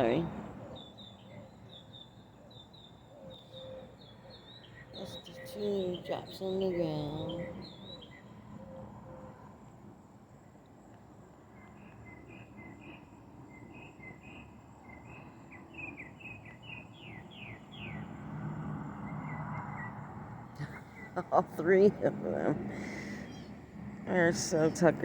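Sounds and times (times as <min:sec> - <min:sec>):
small songbird singing: 0:00.0 - 0:08.4, 0:11.6 - 0:18.1, 0:20.6 - 0:25.0
faint outdoor ambience: 0:00.0 - 0:25.0.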